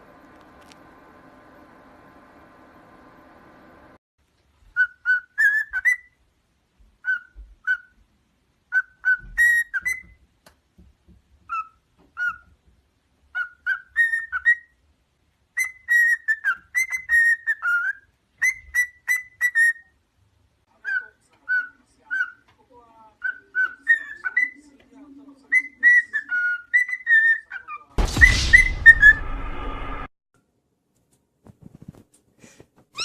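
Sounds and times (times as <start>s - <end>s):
parrot whistling: 4.8s - 6.2s, 7.0s - 8.0s, 8.7s - 10.2s, 13.4s - 14.8s, 15.6s - 20.0s, 23.2s - 24.6s, 25.5s - 27.6s.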